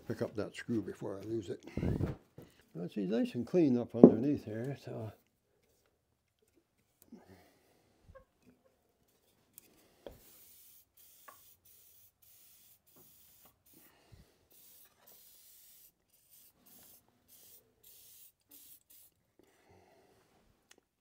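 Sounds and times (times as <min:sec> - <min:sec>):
hissing rubbing strokes: 0:10.2 - 0:13.9, 0:14.5 - 0:19.2.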